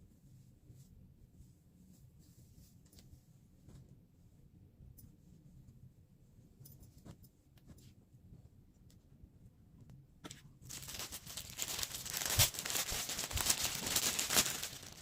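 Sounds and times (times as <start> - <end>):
plastic packaging crinkling: 10.7 - 15.0.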